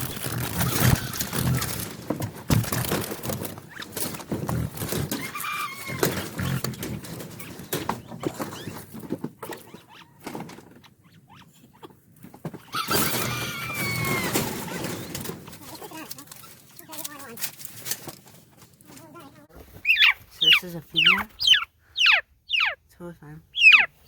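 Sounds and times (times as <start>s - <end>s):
knocks and rustling: 0.0s - 10.8s, 11.8s - 20.4s
bird squawk: 19.8s - 22.8s, 23.5s - 24.0s.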